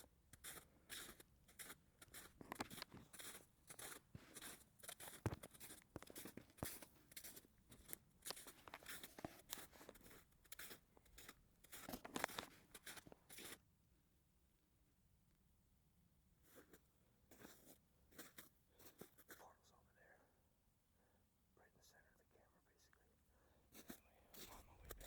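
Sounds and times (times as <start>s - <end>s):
footsteps crunching in snow: 0.0s - 13.6s, 16.5s - 19.4s, 23.7s - 25.0s.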